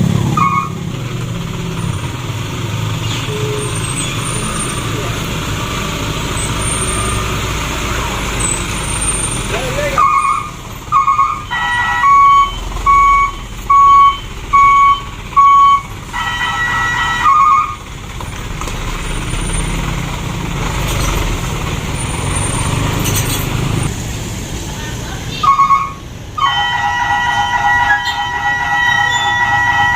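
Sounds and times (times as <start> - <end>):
diesel engine running: 0.0 - 29.9
reversing alarm beeping: 10.0 - 17.8, 25.4 - 29.9.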